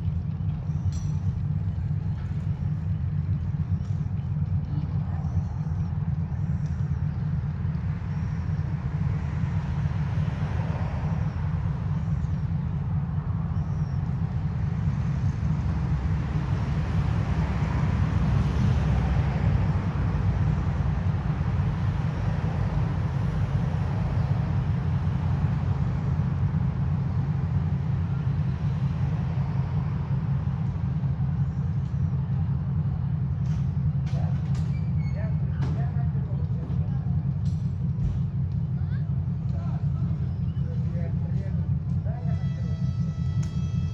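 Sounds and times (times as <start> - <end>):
diesel locomotive engine rumble: 0.0 - 43.9.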